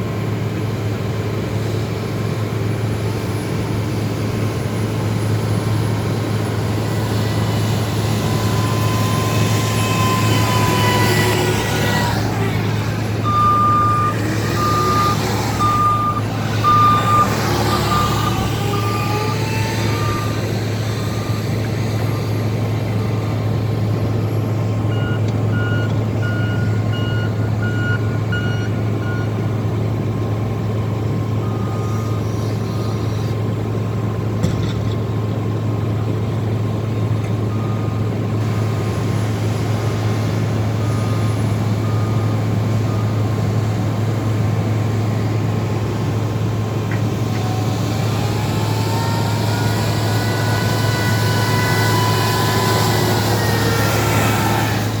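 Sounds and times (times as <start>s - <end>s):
loader engines running: 0.0s - 55.0s
plows pushing snow: 0.0s - 55.0s
reversing alarm beeping: 6.4s - 23.5s, 24.9s - 29.4s, 31.3s - 33.3s, 40.8s - 44.0s, 47.3s - 54.9s.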